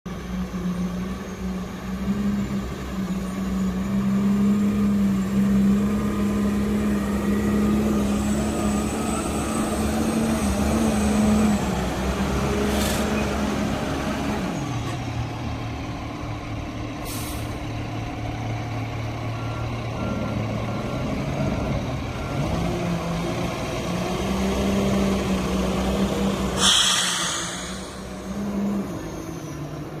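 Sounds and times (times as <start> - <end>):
garbage truck diesel engine running: 0.2 - 30.0
air hiss bursts: 26.6 - 28.4.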